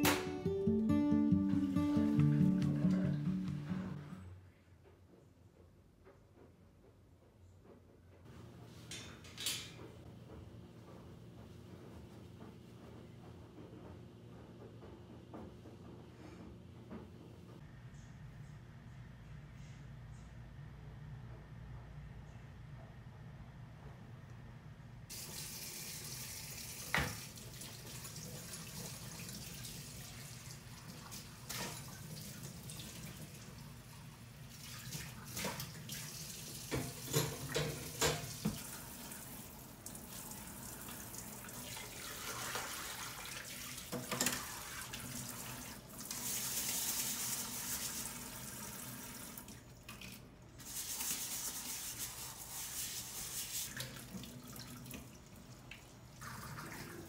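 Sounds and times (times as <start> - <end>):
tap water running into sink: 25.1 - 33.6, 34.6 - 57.0.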